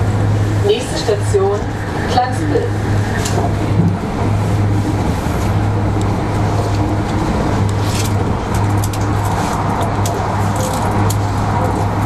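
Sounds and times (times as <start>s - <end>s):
constant low hum: 0.0s - 12.0s
train wheels rumbling on rail: 0.0s - 12.0s.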